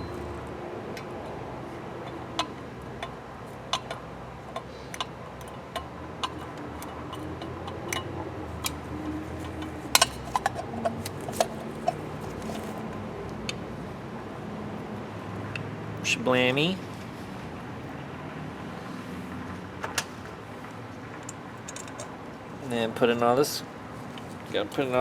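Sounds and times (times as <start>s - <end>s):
metal parts clicking and clinking: 2.0s - 12.8s, 21.2s - 22.1s.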